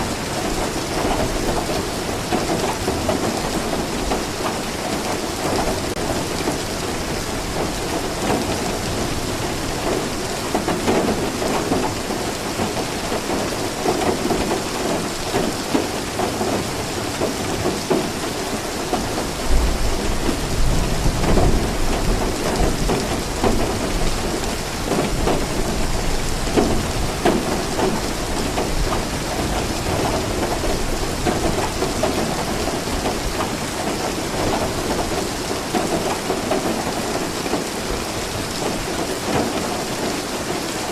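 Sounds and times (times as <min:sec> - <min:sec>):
heavy rain pattering: 0:00.0 - 0:40.9
low rumble of thunder: 0:18.8 - 0:37.0.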